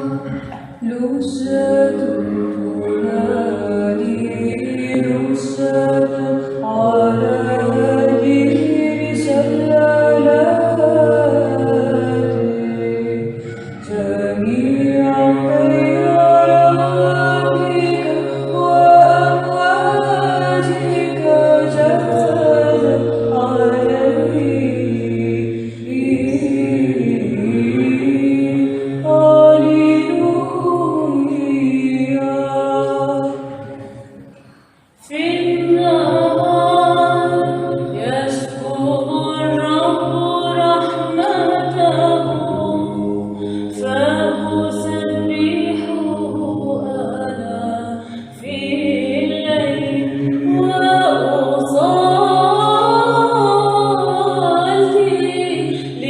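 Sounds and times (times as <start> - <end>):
held vocal drone: 0.0 - 56.0
women singing chant a cappella: 0.0 - 56.0.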